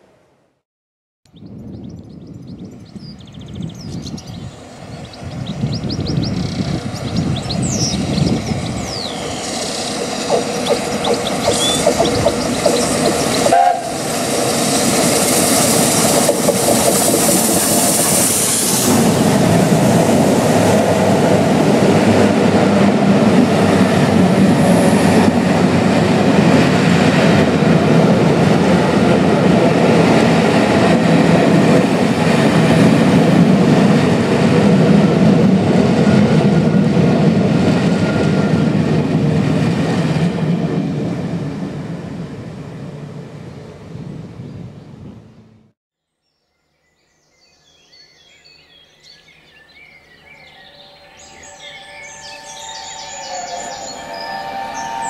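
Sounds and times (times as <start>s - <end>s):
train wheels rumbling and clattering: 5.6s - 43.3s
steam train hissing: 8.3s - 25.7s, 51.2s - 55.0s.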